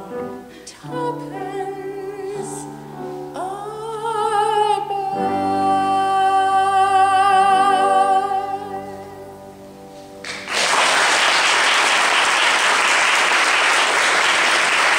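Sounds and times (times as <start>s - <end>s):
woman singing with vibrato: 0.0s - 9.4s
audience applauding: 10.2s - 14.9s.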